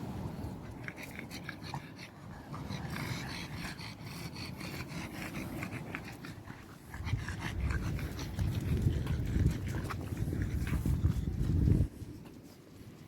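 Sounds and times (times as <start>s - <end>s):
dog panting: 0.7s - 12.7s.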